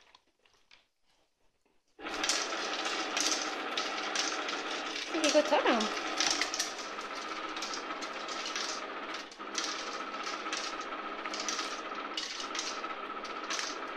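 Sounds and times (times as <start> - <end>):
motor hum: 2.0 - 13.9
kibble clattering in tray: 2.1 - 13.9.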